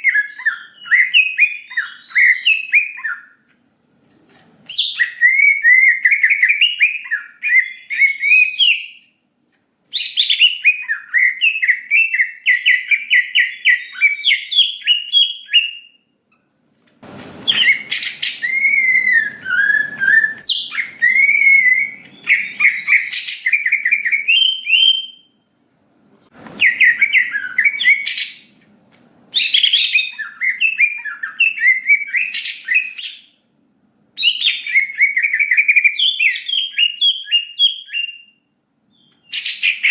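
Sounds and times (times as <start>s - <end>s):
bird singing chattering phrases: 17.5s - 24.3s.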